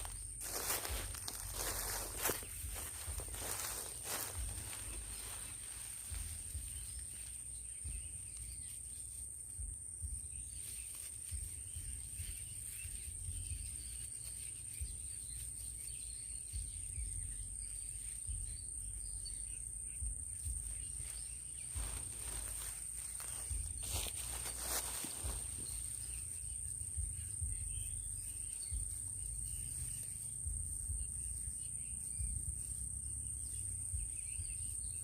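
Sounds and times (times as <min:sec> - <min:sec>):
low uneven rumble: 0:00.0 - 0:08.6
high-pitched insect drone: 0:00.0 - 0:35.0.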